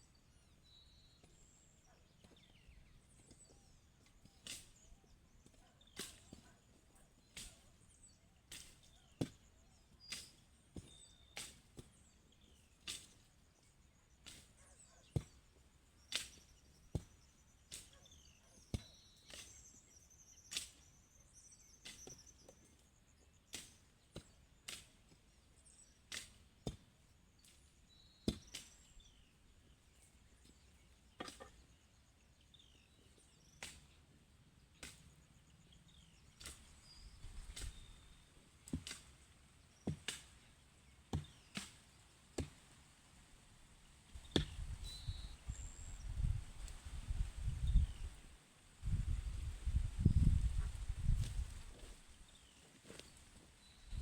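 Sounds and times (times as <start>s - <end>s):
faint bird chirps: 0.0s - 26.1s, 44.1s - 54.0s
hand tool chopping: 41.1s - 42.6s, 44.2s - 44.7s.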